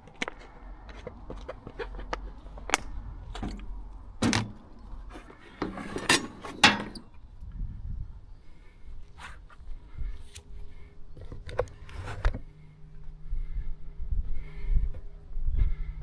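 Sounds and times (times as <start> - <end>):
clatter of knocks and scrapes: 5.1 - 7.0.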